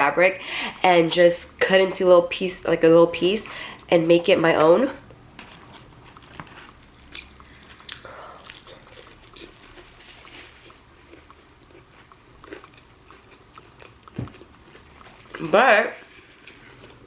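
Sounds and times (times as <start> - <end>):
chewing food: 5.0 - 17.0.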